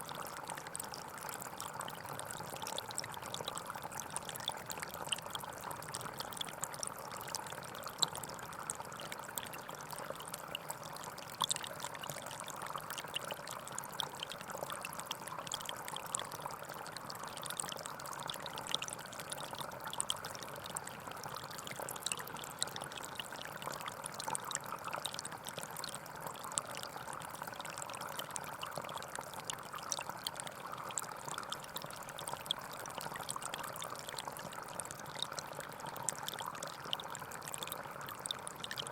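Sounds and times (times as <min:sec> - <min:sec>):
stream flowing over stones: 0:15.4 - 0:38.9.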